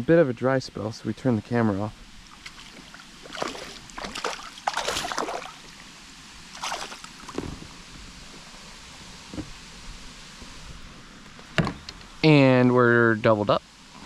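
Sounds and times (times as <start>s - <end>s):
water splashing around kayak: 2.2s - 5.9s, 6.5s - 7.8s.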